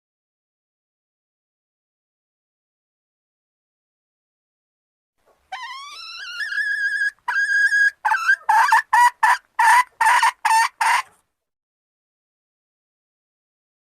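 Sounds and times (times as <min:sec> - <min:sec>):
junglefowl calling: 0:05.5 - 0:11.2.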